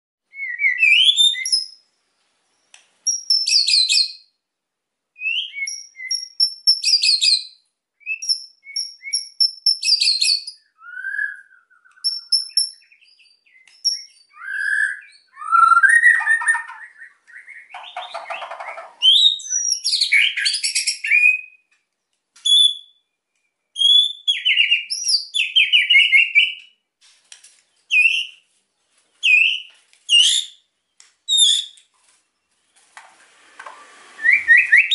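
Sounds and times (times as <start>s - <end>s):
bird singing whistles and rattles: 0.3s - 1.8s, 2.5s - 4.3s, 5.2s - 21.7s, 22.4s - 26.8s, 27.8s - 28.4s, 29.2s - 30.6s, 31.3s - 31.9s, 34.1s - 34.9s.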